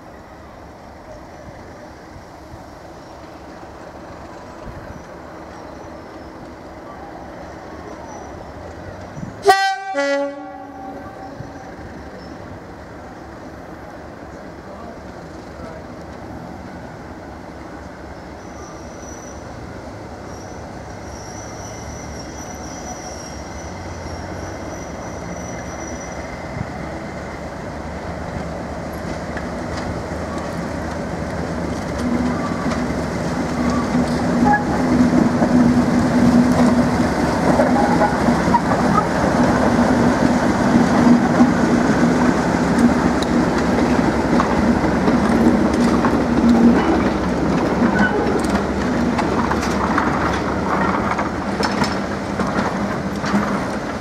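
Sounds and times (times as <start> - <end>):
train engine hum: 0.0 - 54.0
wheels on rails: 20.3 - 54.0.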